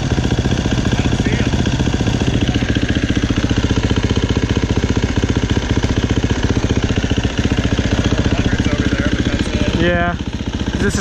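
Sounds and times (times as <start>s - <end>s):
dirt bike engine idling: 0.0s - 11.0s.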